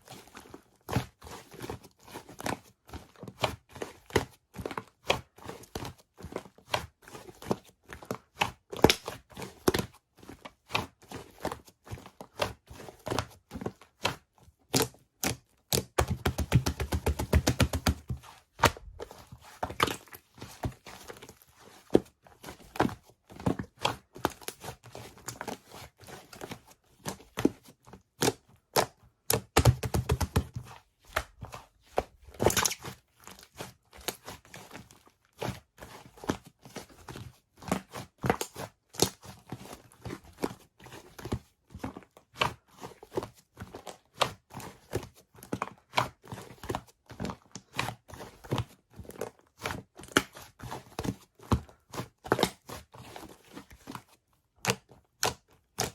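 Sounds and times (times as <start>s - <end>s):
slime popping and crackling: 32.4s - 32.8s.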